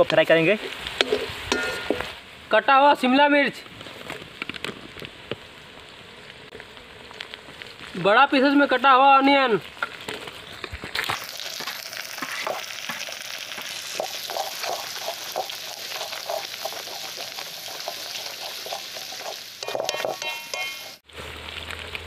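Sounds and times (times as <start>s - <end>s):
vegetables sizzling in hot oil: 8.1s - 22.0s
wooden spatula scraping wok: 12.1s - 21.0s.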